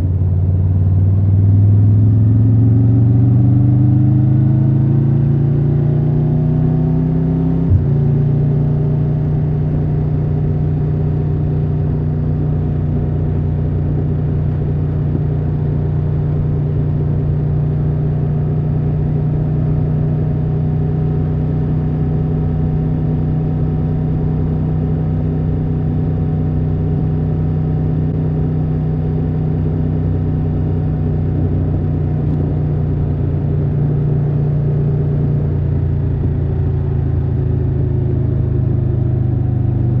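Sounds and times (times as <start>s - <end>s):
motorcycle engine revving: 2.1s - 9.6s.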